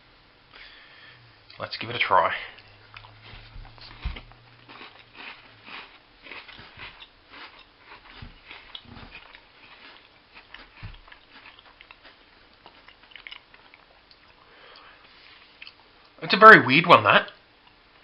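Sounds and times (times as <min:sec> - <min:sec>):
biscuit crunching while chewing: 0:02.4 - 0:16.2.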